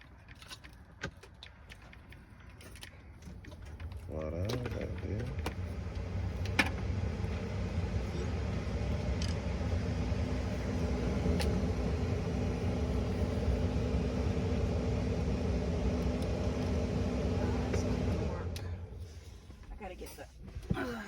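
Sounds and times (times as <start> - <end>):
truck engine rumbling: 3.7 - 19.5.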